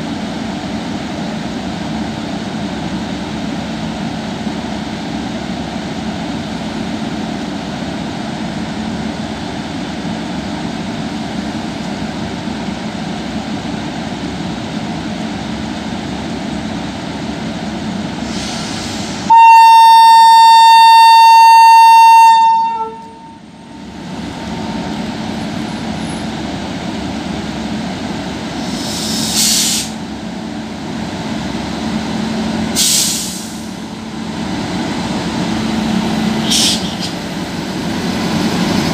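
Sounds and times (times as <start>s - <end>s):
electric train rumble and hum: 0.0s - 38.9s
short hisses: 18.2s - 19.3s, 28.6s - 30.0s, 32.8s - 33.8s, 36.4s - 37.2s
loud single-note train horn: 19.3s - 23.4s.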